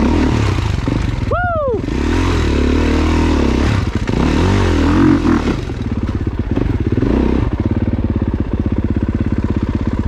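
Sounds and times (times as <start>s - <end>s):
dirt bike engine revving: 0.0s - 10.0s.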